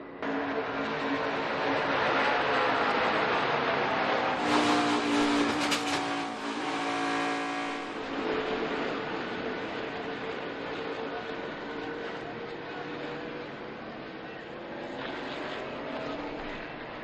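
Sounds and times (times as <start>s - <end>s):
race car engines at speed: 0.0s - 17.0s
race car passing close by: 0.2s - 11.1s.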